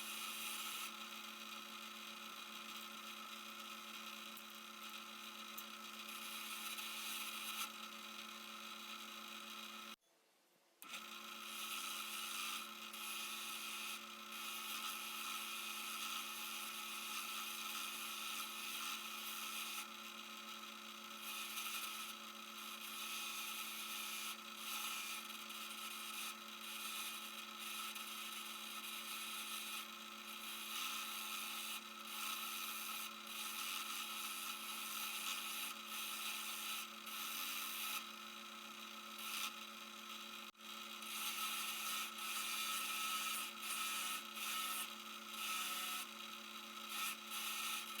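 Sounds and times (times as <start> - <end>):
electric power tool rasping: 29.0 - 48.0.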